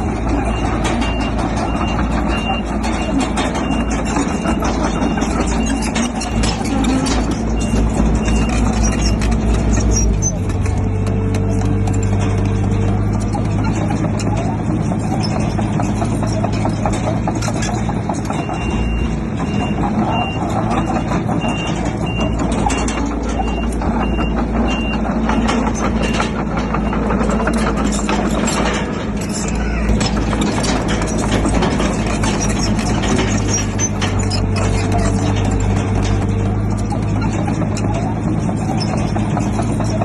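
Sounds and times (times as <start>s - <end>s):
reversing alarm beeping: 0.0s - 9.7s, 18.2s - 27.6s
bulldozer diesel engine running: 0.0s - 40.0s
metal clanks: 0.0s - 40.0s.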